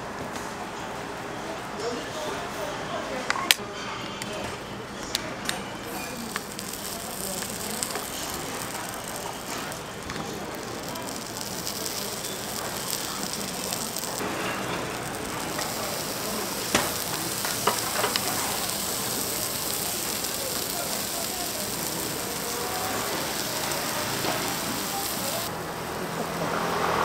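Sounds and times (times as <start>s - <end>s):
batter sizzling in molds: 5.9s - 27.0s.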